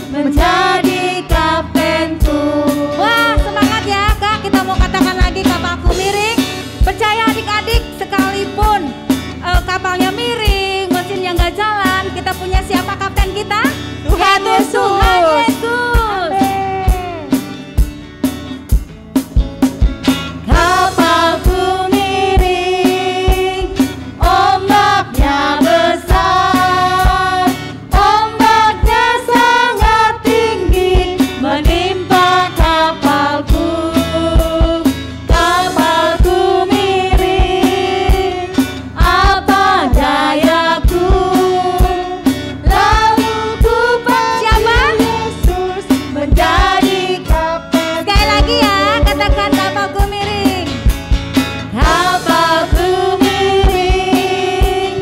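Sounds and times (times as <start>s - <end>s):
children singing worship song: 0.0s - 4.2s, 14.1s - 16.7s, 20.4s - 50.0s, 51.7s - 55.0s
band accompaniment: 0.0s - 55.0s
steady drum beat: 0.0s - 55.0s.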